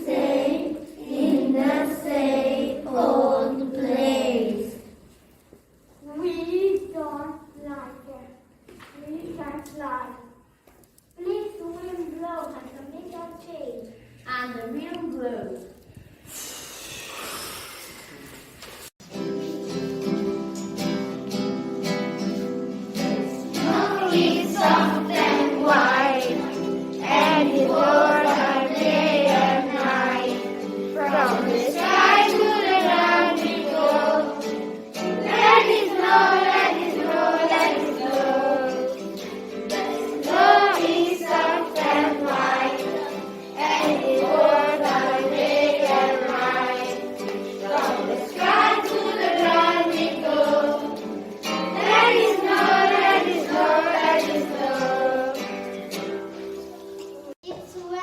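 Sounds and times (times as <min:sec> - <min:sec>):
children singing: 0:00.0 - 0:05.0, 0:22.7 - 0:56.2.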